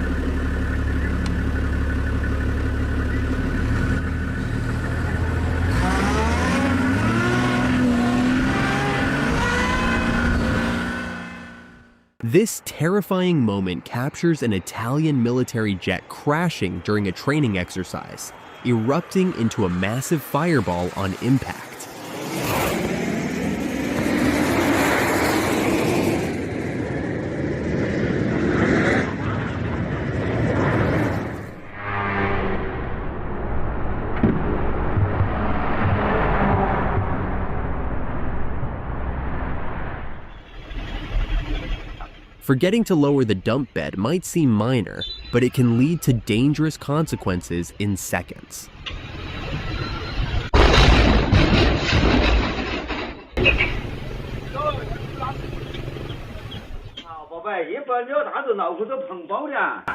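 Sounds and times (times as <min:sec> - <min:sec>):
vehicle engine revving: 0:00.0 - 0:12.1, 0:21.8 - 0:26.9, 0:30.5 - 0:42.4
loud rushing roar: 0:02.7 - 0:12.0, 0:18.3 - 0:42.4.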